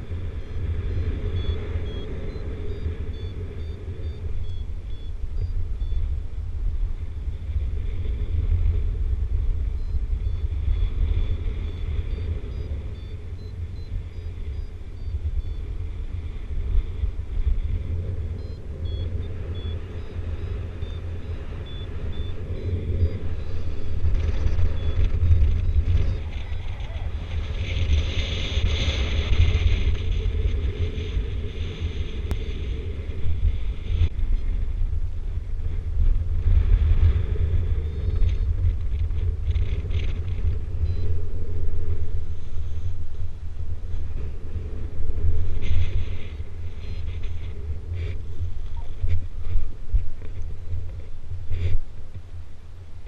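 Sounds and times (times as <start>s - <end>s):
wind buffeting microphone: 0.0s - 53.0s
variometer high beeps: 1.2s - 6.1s, 9.7s - 15.7s, 18.3s - 27.2s, 40.8s - 41.2s
rush of airflow: 21.8s - 53.0s.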